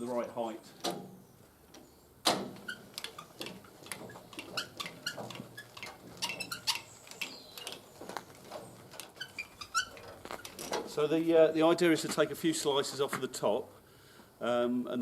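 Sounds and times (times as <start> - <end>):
small squeaks: 0.8 - 11.0
bandsaw mill carriage clicking: 2.2 - 11.0.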